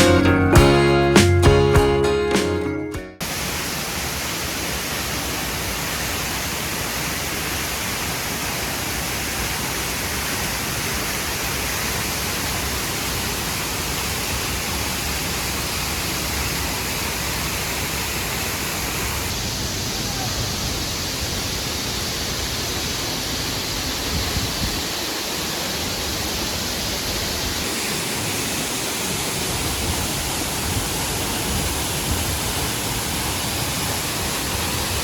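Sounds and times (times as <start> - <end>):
acoustic guitar music: 0.0 - 3.2
waterfall rushing: 3.2 - 35.0.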